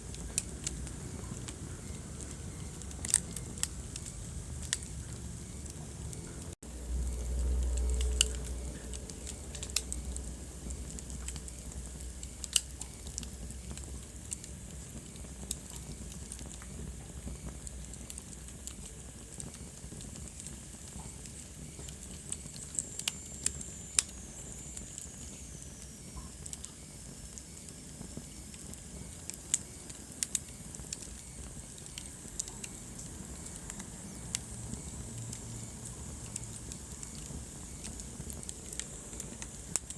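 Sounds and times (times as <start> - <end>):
low rumble: 0.0 - 12.2
wood fire crackling and popping: 0.0 - 39.9.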